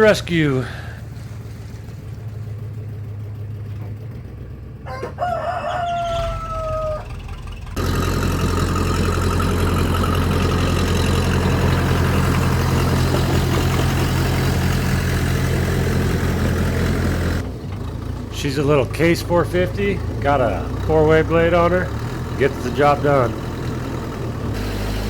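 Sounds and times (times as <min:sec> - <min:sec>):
crawler dozer engine running: 0:00.0 - 0:25.0
low engine hum: 0:00.0 - 0:25.0
rooster crowing: 0:04.8 - 0:07.4.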